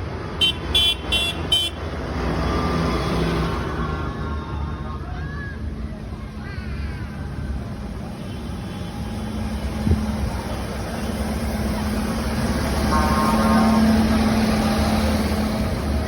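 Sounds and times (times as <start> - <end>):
tractor engine humming: 8.7 - 16.0.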